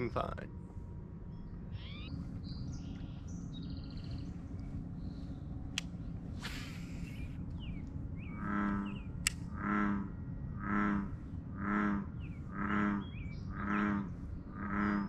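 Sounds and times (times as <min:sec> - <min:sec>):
low background rumble: 0:00.0 - 0:15.0
small birds chirping: 0:00.0 - 0:15.0
low pitched call: 0:01.7 - 0:15.0
sharp click: 0:09.2 - 0:09.5.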